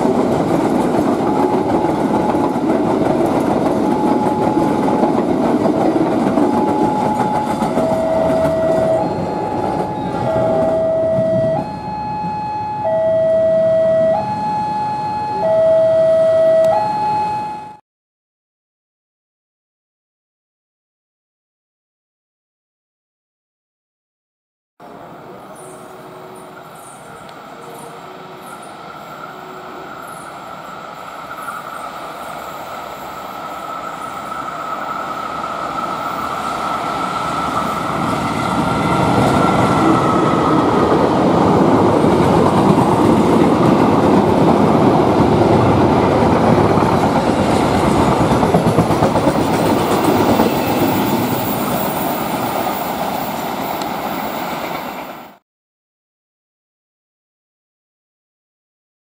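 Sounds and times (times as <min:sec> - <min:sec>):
train rumbling past: 0:00.0 - 0:16.2, 0:24.8 - 0:55.4
high wheel squeal: 0:49.8 - 0:55.3.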